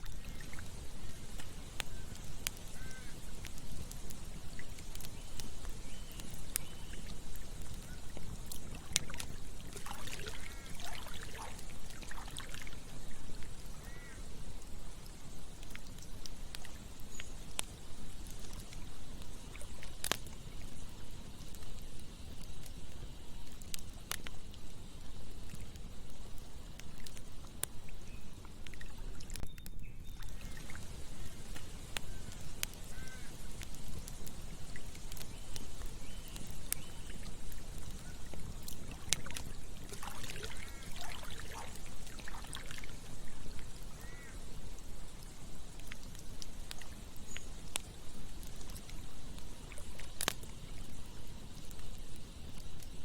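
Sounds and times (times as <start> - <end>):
campfire crackling and popping: 0.0 - 53.0
water gurgling: 7.1 - 14.1, 37.0 - 44.2.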